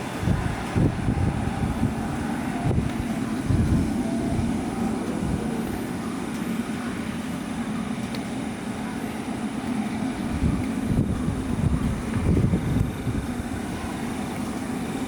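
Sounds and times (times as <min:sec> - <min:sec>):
wind on microphone: 0:00.0 - 0:05.9, 0:10.2 - 0:14.8
jet engines rumbling: 0:00.0 - 0:15.0.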